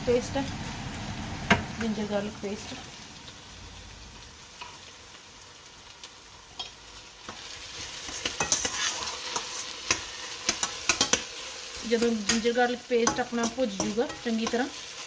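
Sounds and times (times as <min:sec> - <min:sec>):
food sizzling in oil: 0:00.0 - 0:15.0
metal utensil scraping a pan: 0:06.6 - 0:15.0.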